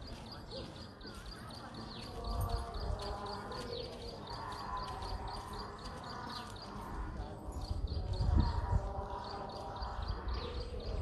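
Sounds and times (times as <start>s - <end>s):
birds chirping: 0.0s - 11.0s
murmur of distant voices: 0.0s - 11.0s
wind gusts on microphone: 7.5s - 11.0s.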